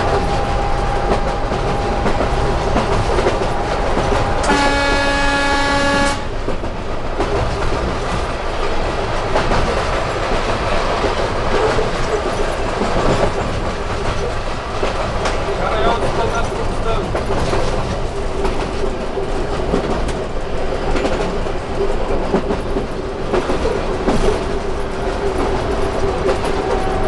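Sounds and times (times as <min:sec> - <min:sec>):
train horn blast: 0:00.0 - 0:06.4
train running over rails: 0:00.0 - 0:27.0.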